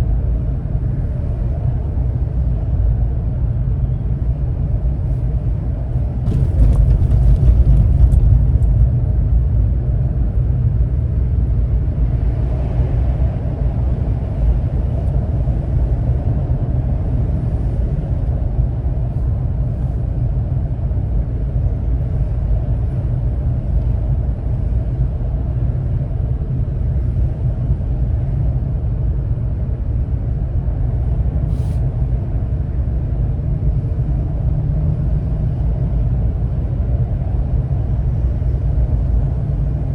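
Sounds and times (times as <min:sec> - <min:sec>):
car driving low rumble: 0:00.0 - 0:39.9.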